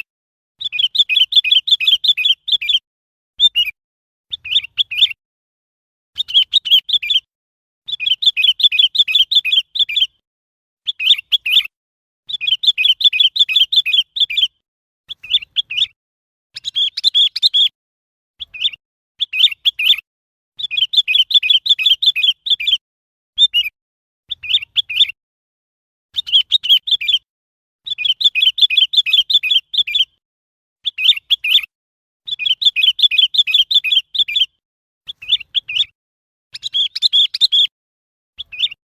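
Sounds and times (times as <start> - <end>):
bulbul calling: 0.6 - 2.8, 3.4 - 5.2, 6.2 - 7.3, 7.9 - 10.2, 10.8 - 11.7, 12.3 - 16.0, 16.6 - 17.8, 18.4 - 20.0, 20.6 - 22.8, 23.4 - 25.2, 26.2 - 27.3, 27.9 - 30.2, 30.8 - 31.7, 32.3 - 37.7, 38.4 - 38.8.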